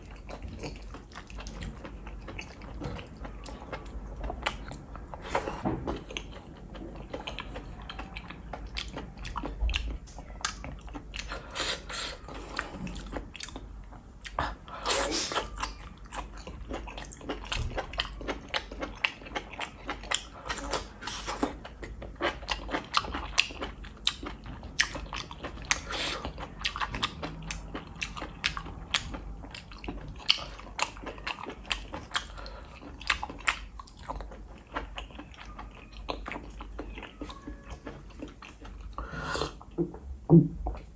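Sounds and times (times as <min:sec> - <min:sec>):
chewing and biting: 0:00.0 - 0:39.7.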